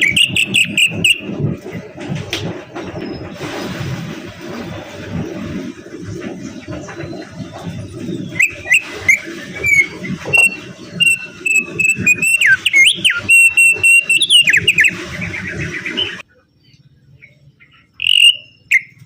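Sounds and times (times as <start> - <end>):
songbird singing: 0.0 - 1.3, 6.9 - 19.0
low rumbling background noise: 0.0 - 19.0.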